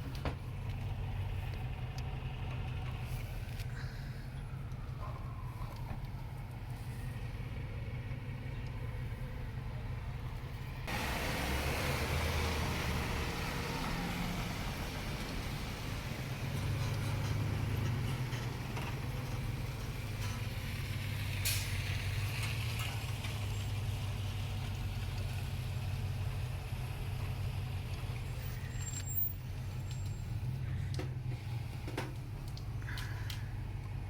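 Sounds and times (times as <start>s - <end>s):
heavy vehicle engine rumble: 0.0s - 34.0s.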